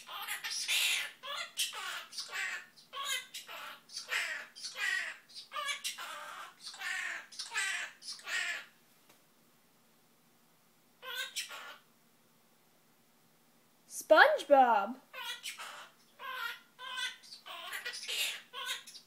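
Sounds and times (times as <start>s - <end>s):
parrot chattering: 0.0s - 8.8s, 11.0s - 11.9s, 15.1s - 19.0s.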